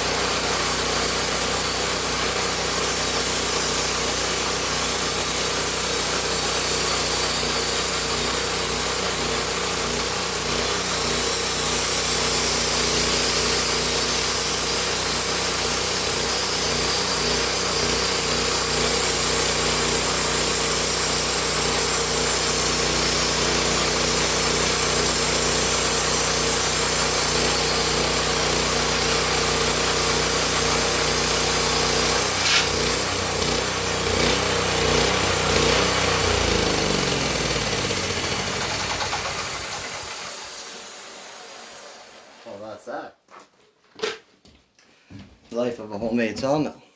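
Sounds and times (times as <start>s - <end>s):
sawmill engine humming: 0.0s - 42.3s
saw blade hissing through log: 0.0s - 42.6s
sharp click: 32.3s - 32.8s.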